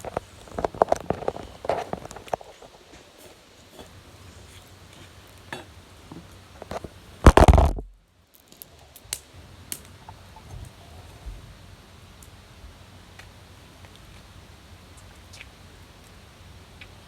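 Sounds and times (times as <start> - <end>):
wood fire crackling: 0.0 - 10.2, 12.1 - 12.4.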